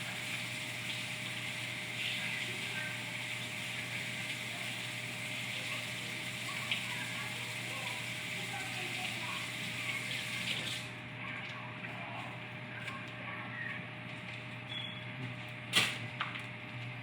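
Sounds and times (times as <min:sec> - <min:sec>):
running water: 0:00.0 - 0:11.6.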